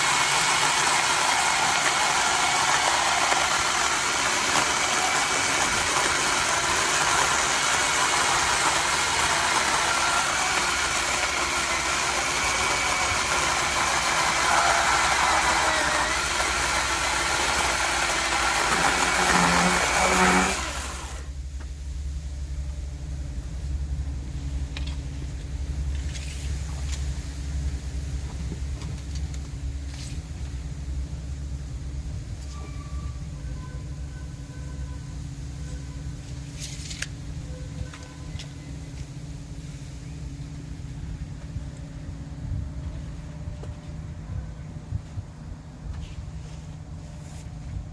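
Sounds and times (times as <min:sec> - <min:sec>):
electric chainsaw running: 0:00.0 - 0:21.3.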